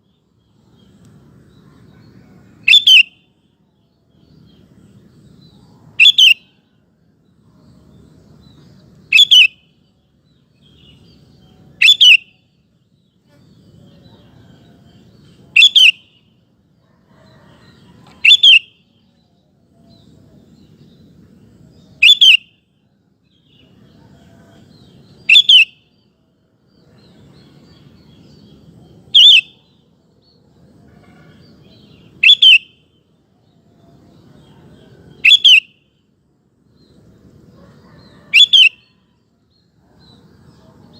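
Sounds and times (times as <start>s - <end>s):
bulbul sharp high calls: 2.6s - 3.3s, 6.0s - 6.6s, 9.1s - 9.7s, 11.8s - 12.4s, 15.6s - 16.2s, 18.2s - 18.9s, 22.0s - 22.6s, 25.2s - 25.9s, 29.1s - 29.8s, 31.6s - 32.9s, 35.2s - 35.8s, 38.3s - 39.0s.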